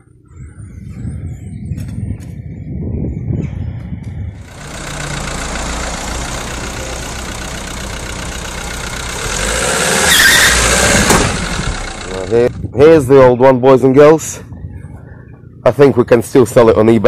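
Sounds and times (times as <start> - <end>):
car engine running: 4.4 - 12.7
brief high squeal: 10.1 - 10.6.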